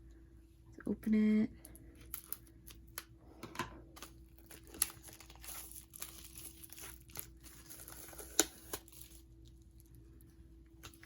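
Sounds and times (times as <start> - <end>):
plastic wrapping crinkling and tearing: 3.9 - 10.0.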